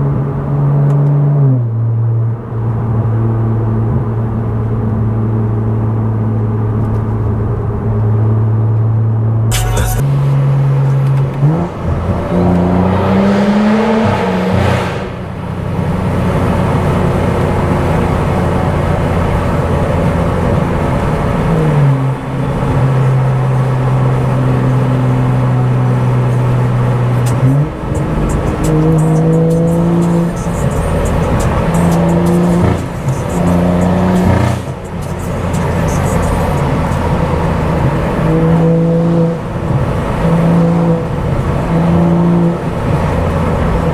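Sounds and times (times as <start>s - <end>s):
gear changes: 9.5s - 43.9s
loud car exhaust revving: 9.6s - 43.9s.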